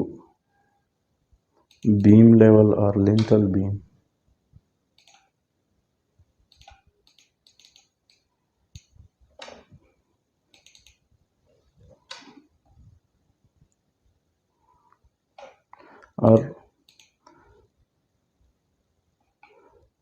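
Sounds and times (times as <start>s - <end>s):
keyboard and mouse clicks: 1.6s - 2.2s, 5.0s - 5.4s, 6.5s - 9.8s, 10.5s - 11.1s, 11.8s - 12.5s, 15.3s - 15.8s, 16.8s - 17.4s, 19.3s - 19.8s.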